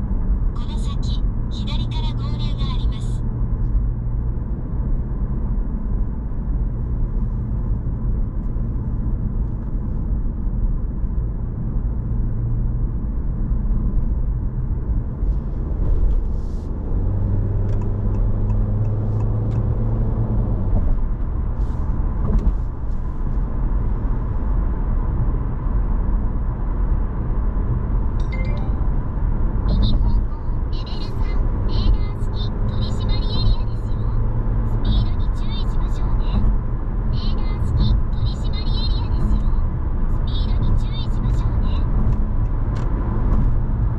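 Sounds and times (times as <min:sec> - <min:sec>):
car cabin road and engine noise: 0:00.0 - 0:43.9
deep hum: 0:27.2 - 0:43.9.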